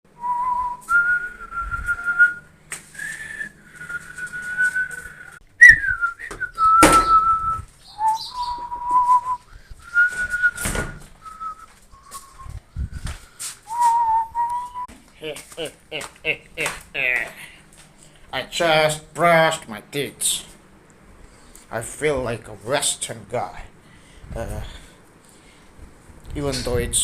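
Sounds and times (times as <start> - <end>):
person whistling a slow tune: 0.2 - 12.6, 13.7 - 14.9.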